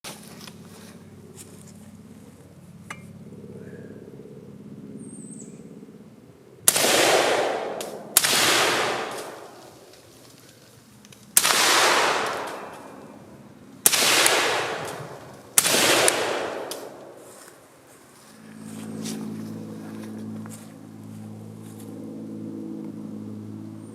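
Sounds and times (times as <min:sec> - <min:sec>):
gunshot echo: 0:06.7 - 0:09.8, 0:11.4 - 0:13.2, 0:13.8 - 0:17.3
suppressed rifle shots: 0:06.7 - 0:09.9, 0:11.4 - 0:13.2, 0:13.8 - 0:17.3.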